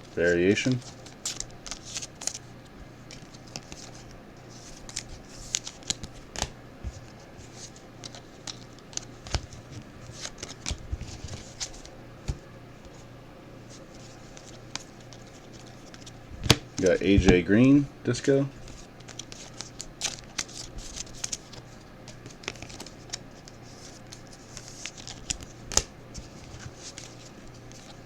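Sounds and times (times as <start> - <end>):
cards clicking and rustling: 0.2 - 13.0, 13.7 - 17.4, 18.6 - 28.0.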